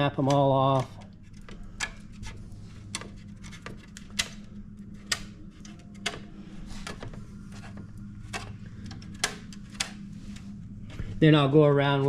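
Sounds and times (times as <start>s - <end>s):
steady low hum: 0.0s - 12.0s
wooden toothpicks snapping: 2.9s - 4.4s, 5.0s - 6.3s.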